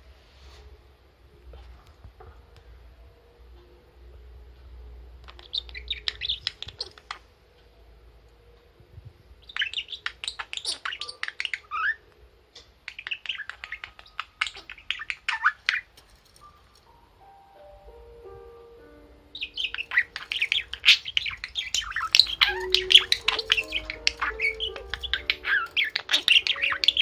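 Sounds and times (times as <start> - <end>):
budgerigar chirping: 5.3 - 7.2, 9.4 - 15.9, 19.2 - 27.0.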